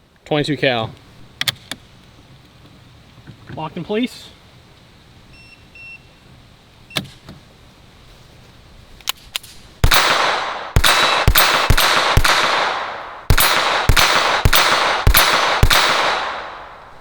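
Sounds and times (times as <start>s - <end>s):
sharp gun clicks: 9.0s - 16.7s
pistol shots echoing: 9.8s - 16.9s.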